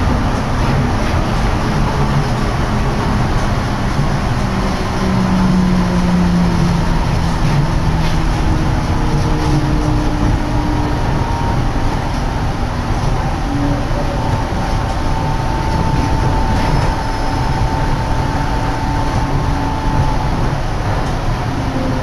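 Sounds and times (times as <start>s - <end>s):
train tyre rumble: 0.0s - 22.0s.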